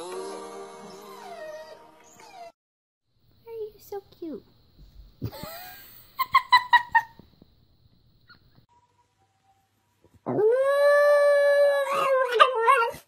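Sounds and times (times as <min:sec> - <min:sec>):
dog howling: 0:00.8 - 0:02.6, 0:10.3 - 0:13.0.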